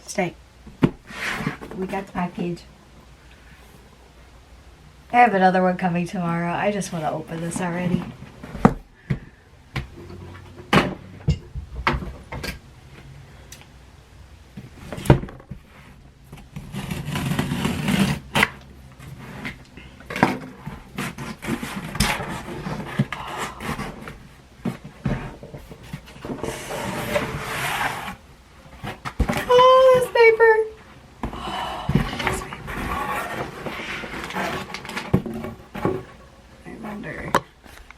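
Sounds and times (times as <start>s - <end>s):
paper rustling and tearing: 16.6s - 19.6s, 32.2s - 35.2s.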